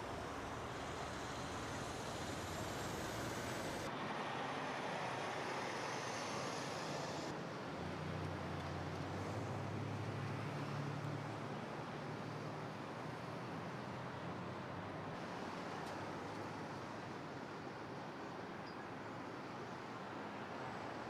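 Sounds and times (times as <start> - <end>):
vehicles passing: 0.0 - 16.8.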